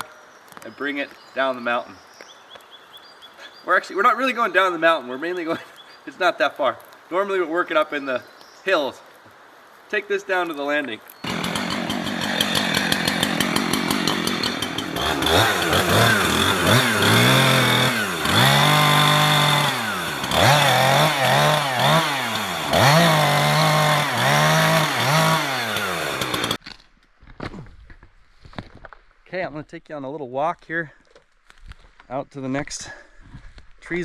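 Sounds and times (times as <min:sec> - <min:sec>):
chainsaw revving: 0:11.2 - 0:26.6.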